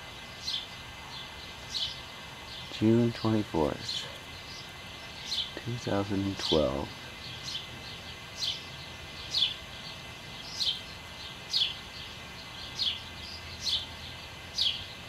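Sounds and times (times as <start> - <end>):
bird chirping: 0.0 - 15.0
steady background hiss: 0.0 - 15.0.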